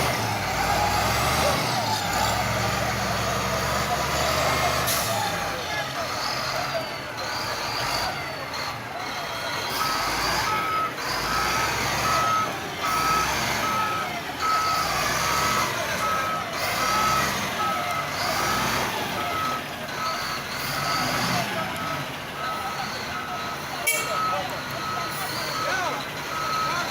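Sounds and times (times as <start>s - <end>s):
diesel engine under load: 0.0s - 26.9s
reverse alarm beeping: 9.7s - 26.9s.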